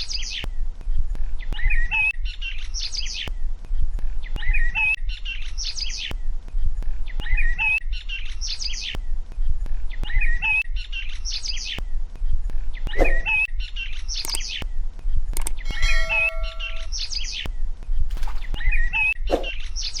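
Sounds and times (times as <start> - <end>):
birds chirping: 12.7 - 17.5.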